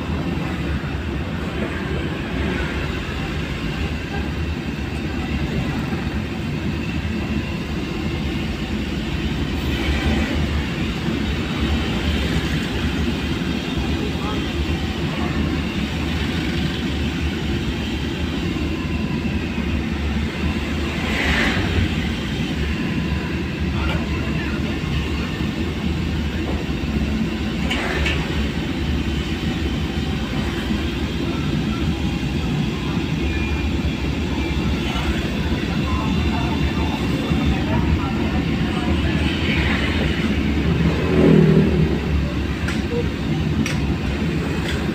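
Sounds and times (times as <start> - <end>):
vehicle rumbling on road: 36.8 - 44.9.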